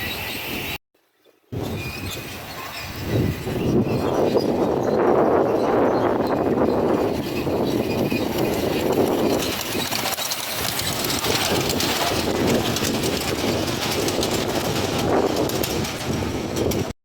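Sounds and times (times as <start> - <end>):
miniature train clattering on rails: 2.5 - 17.0.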